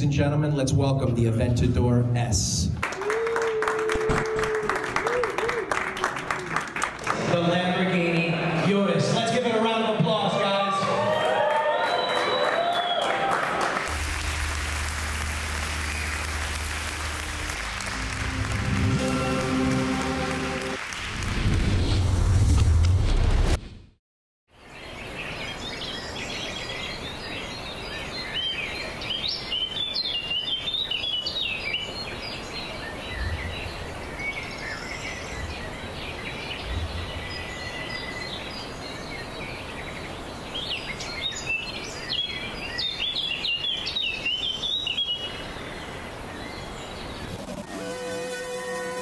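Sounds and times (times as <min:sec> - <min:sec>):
music with sustained tones: 0:13.9 - 0:20.8.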